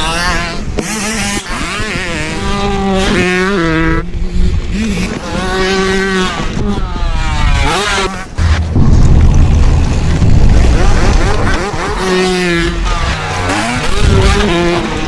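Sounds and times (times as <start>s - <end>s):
wind on microphone: 0.0s - 15.0s
tyre rumble on dirt: 8.4s - 13.0s.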